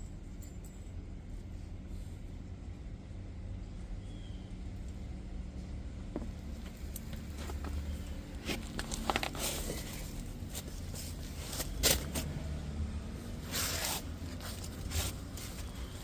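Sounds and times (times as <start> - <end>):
low steady hum: 0.0 - 16.0
packaging rustling: 8.4 - 12.2.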